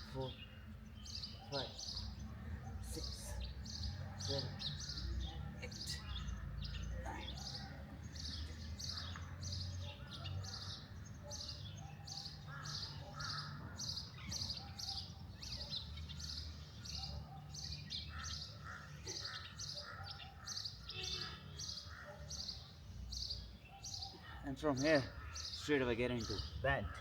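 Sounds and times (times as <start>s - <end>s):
birds calling lower: 0.0s - 27.0s.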